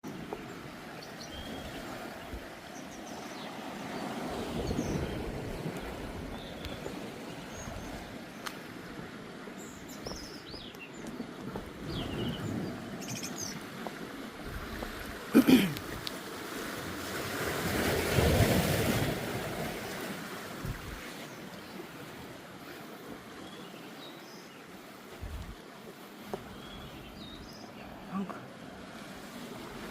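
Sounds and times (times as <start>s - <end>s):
small birds chirping faintly: 0.0s - 13.7s, 21.0s - 28.6s
waves washing against rocks: 11.3s - 23.4s.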